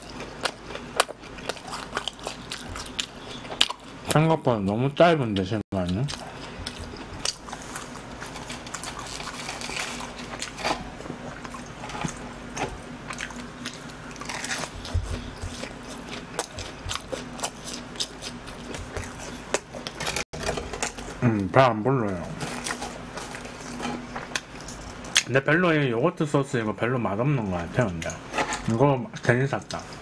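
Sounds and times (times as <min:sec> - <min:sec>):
chewing crunchy snacks: 0:00.0 - 0:04.2, 0:05.8 - 0:21.2.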